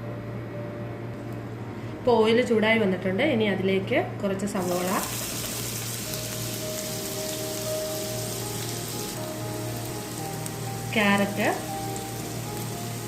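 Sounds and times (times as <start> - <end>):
faint background music: 0.0 - 13.0
onion sizzling in hot oil: 4.6 - 13.0.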